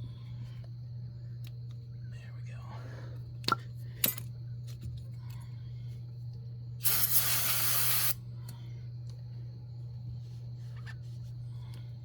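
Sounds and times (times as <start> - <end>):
steady low hum: 0.0 - 12.0
aerosol can spraying: 6.8 - 8.2.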